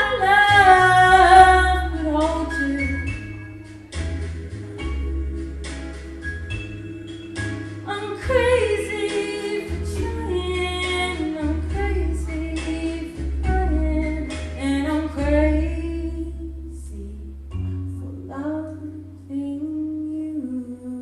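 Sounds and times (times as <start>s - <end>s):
woman singing: 0.0s - 3.2s, 7.8s - 21.0s
held bass notes: 0.0s - 21.0s.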